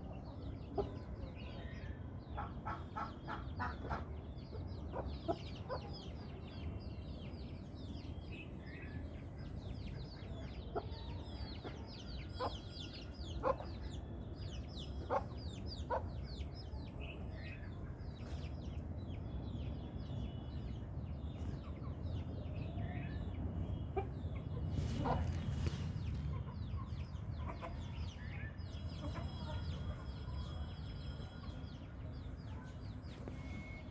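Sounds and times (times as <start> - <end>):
chickens clucking: 2.3 - 6.2, 9.9 - 18.9, 23.6 - 33.9.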